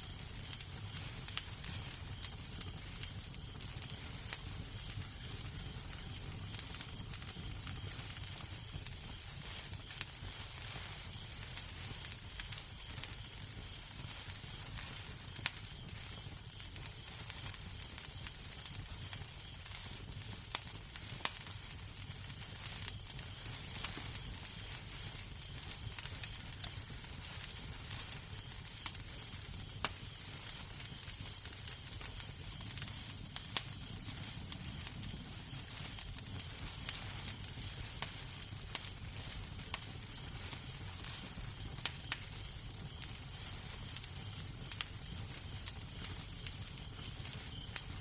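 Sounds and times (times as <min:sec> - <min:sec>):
wood fire crackling: 0:00.0 - 0:48.0.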